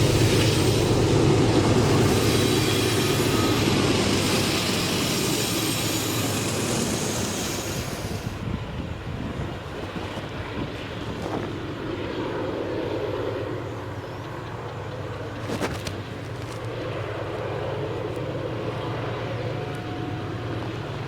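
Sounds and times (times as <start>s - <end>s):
train wheel squeal: 0.0s - 8.7s, 18.7s - 21.0s
train wagons rolling on rails: 0.0s - 12.1s, 13.6s - 21.0s.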